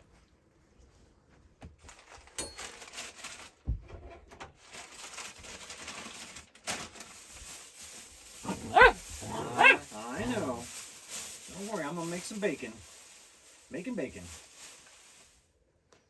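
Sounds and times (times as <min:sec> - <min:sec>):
faint rustling: 0:07.0 - 0:15.4
puppy whining: 0:08.4 - 0:10.6.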